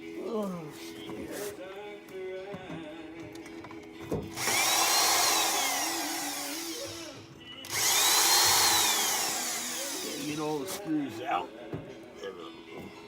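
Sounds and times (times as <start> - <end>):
power drill whining: 4.3 - 10.8.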